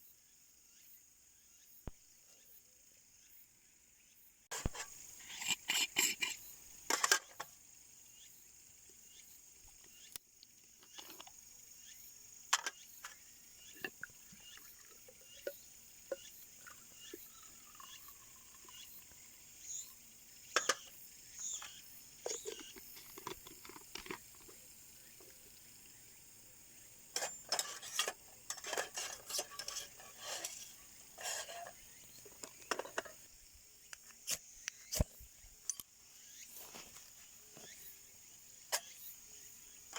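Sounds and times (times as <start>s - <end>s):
insects chirring: 0.0s - 39.9s
small objects clicking and clattering: 21.5s - 24.6s.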